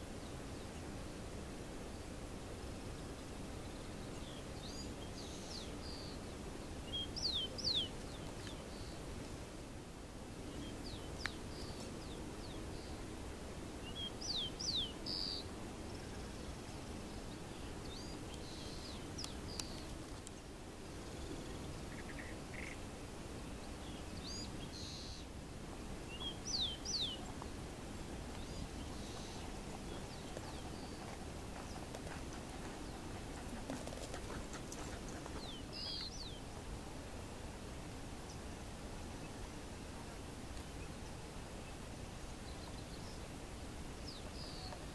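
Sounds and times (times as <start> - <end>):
low background hiss: 0.0 - 44.9
faint bird chirps: 13.8 - 22.8, 23.5 - 25.3, 28.3 - 36.5, 44.0 - 44.9
bird calling: 21.8 - 22.8.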